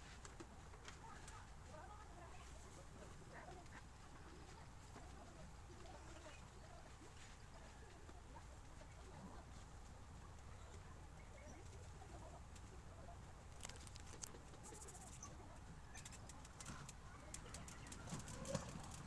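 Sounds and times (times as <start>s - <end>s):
faint clicks: 13.5s - 15.3s, 15.9s - 19.0s.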